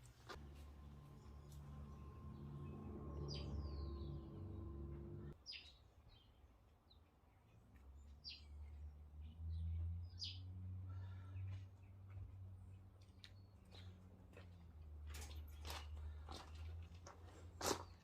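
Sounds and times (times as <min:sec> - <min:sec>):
low hum: 0:00.3 - 0:05.4
birds chirping: 0:00.7 - 0:14.5.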